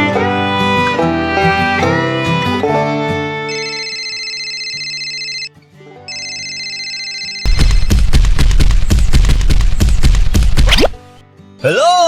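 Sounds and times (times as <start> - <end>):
telephone ringing: 3.5 - 5.5, 6.1 - 7.9.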